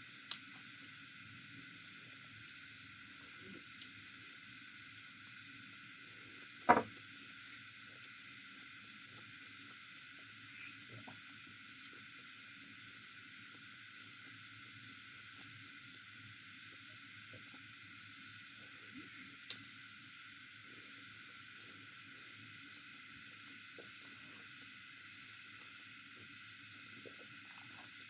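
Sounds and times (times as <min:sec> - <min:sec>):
steady hiss: 0:00.0 - 0:28.0
chewing and small clicks: 0:00.2 - 0:00.8, 0:10.9 - 0:12.1, 0:18.6 - 0:20.6.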